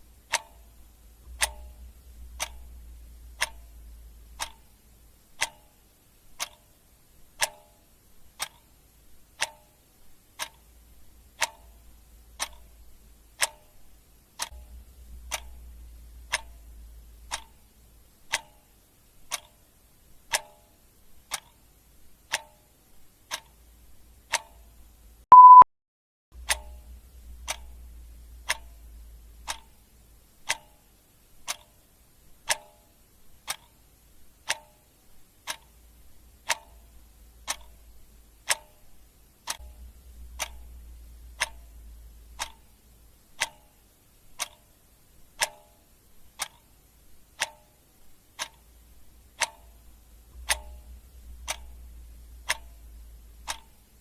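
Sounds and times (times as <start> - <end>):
clock ticking: 0.0 - 25.6, 26.4 - 54.0
short loud beep: 25.3 - 25.7.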